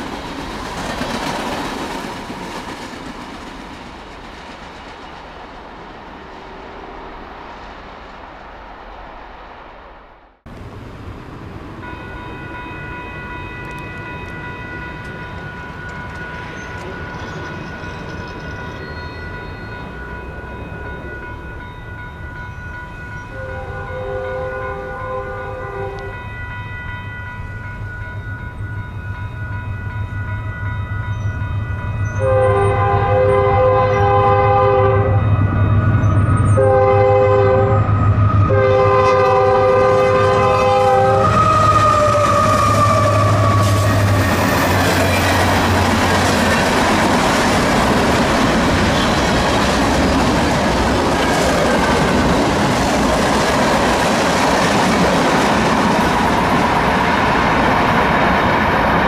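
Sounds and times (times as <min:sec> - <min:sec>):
train cars rushing past: 0:00.0 - 0:59.0
locomotive air horn blasts: 0:23.3 - 0:26.2, 0:32.2 - 0:35.3, 0:36.5 - 0:44.3.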